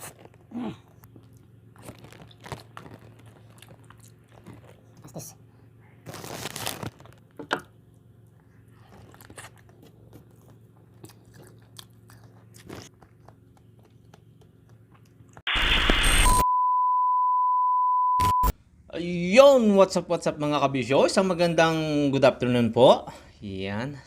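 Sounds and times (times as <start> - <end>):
crunching and chewing: 0.0 - 5.3, 8.0 - 15.4
loud burst of noise: 15.5 - 16.4
steady high beep tone: 16.0 - 18.5.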